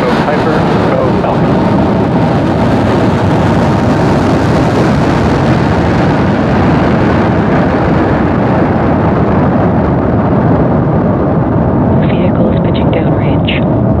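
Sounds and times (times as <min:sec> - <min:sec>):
rocket engine rumble: 0:00.0 - 0:14.0.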